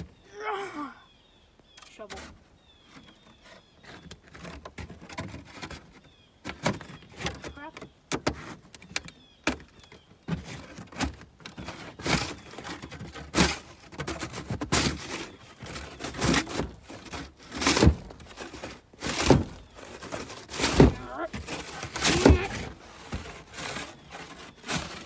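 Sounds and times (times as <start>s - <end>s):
snow shovel scraping truck bed: 10.3s - 25.0s.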